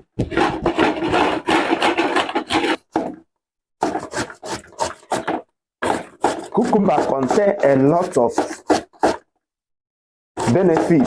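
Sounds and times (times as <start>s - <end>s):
knife slicing cucumber: 3.8s - 9.3s, 10.4s - 11.0s.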